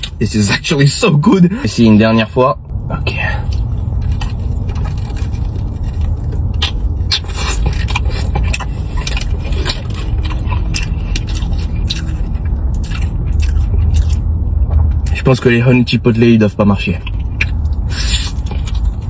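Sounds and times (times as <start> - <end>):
steady low rumble: 0.0 - 19.0
chewing and crunching food: 3.1 - 19.0.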